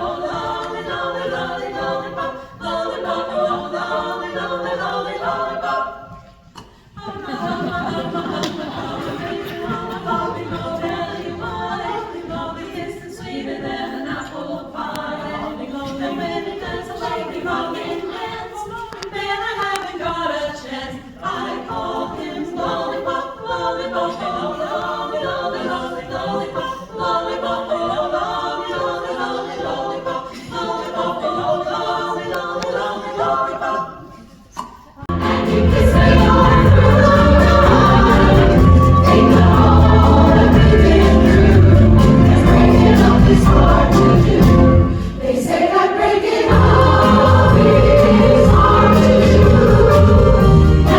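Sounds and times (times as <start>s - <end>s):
women's chorus singing in harmony: 0.0s - 50.9s
song with heavy bass: 35.1s - 44.7s.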